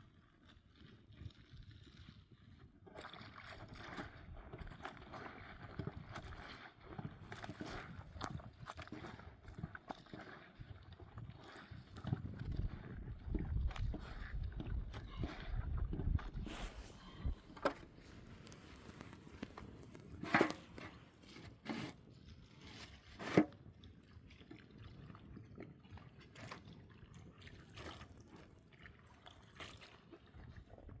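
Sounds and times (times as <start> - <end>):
sharp knocks and scrapes: 13.7 - 22.0, 22.6 - 23.6.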